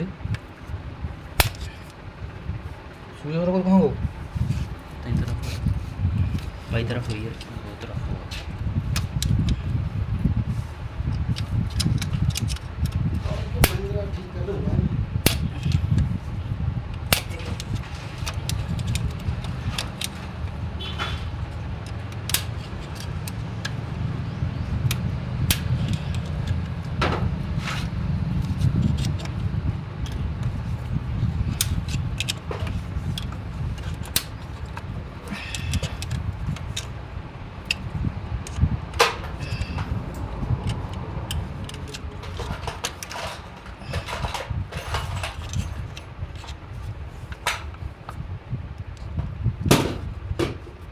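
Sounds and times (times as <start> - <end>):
steady low rumble: 0.0 - 50.9
metal tools clinking and knocking: 40.6 - 46.6.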